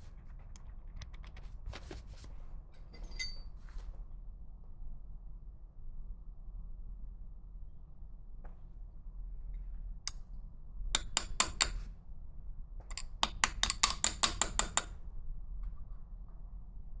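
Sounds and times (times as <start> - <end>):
light metal-on-metal tapping: 11.0 - 11.9, 12.9 - 14.9.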